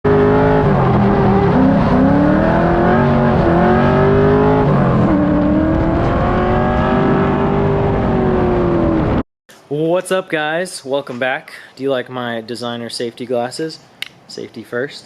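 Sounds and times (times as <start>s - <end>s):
car engine revving hard: 0.1s - 9.2s.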